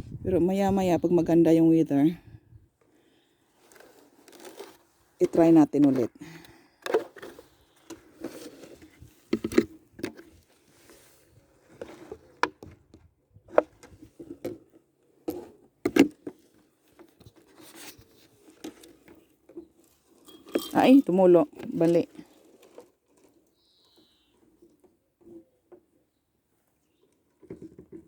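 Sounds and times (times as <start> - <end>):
container knocks and scrapes: 6.8 - 12.8.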